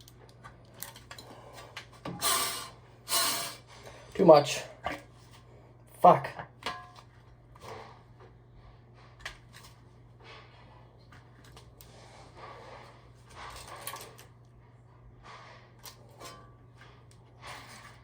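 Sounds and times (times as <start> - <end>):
rustling and scraping: 6.9 - 18.0.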